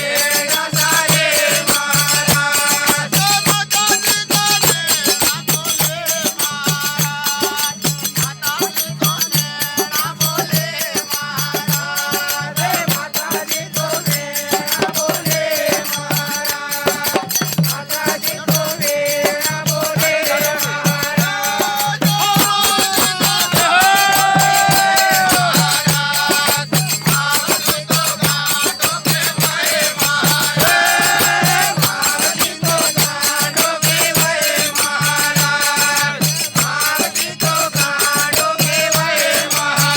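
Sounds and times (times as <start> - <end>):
jingling percussion: 0.0 - 39.9.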